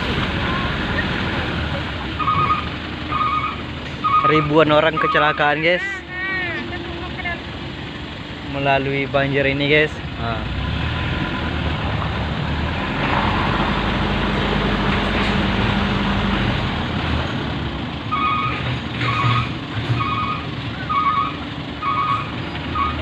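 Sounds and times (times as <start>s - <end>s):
vehicle engine running: 0.0s - 23.0s
back-up alarm beeping: 2.2s - 5.6s, 18.1s - 23.0s.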